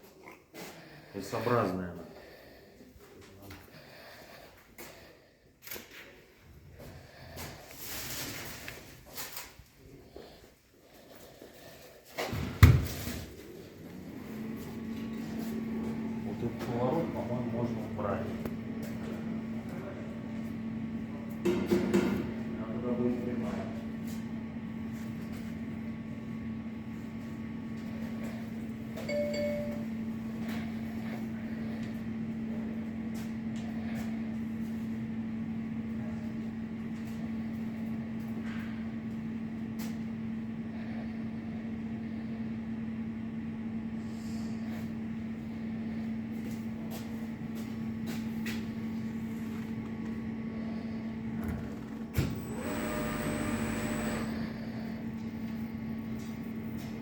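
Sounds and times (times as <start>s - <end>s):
dishwasher humming: 29.0s - 31.2s, 48.3s - 55.1s
short beep: 29.1s - 29.9s
machine whirring: 51.2s - 54.6s.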